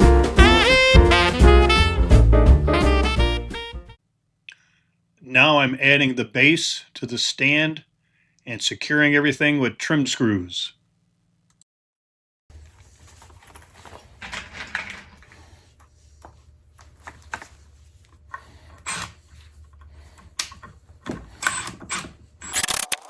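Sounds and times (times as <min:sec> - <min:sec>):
power drill driving screws: 0:21.4 - 0:23.0.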